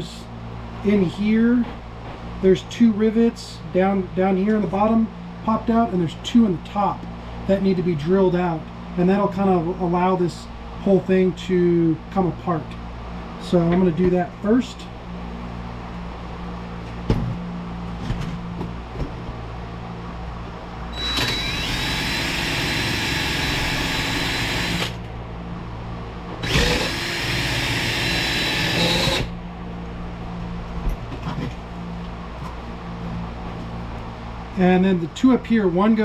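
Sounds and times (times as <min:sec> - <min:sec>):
electric drill whining: 0:21.0 - 0:25.0, 0:26.4 - 0:29.3.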